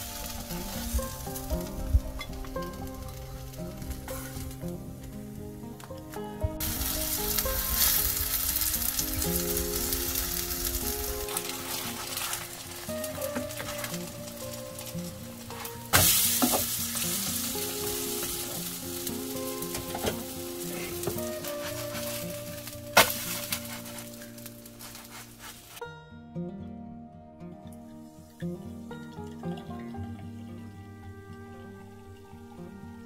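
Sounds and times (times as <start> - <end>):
batter sizzling in a pan: 0.0 - 5.3, 6.6 - 25.8.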